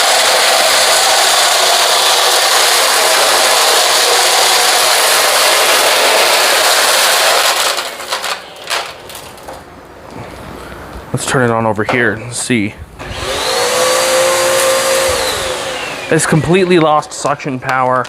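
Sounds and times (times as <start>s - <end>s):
vacuum cleaner running: 0.0s - 9.2s, 13.0s - 17.3s.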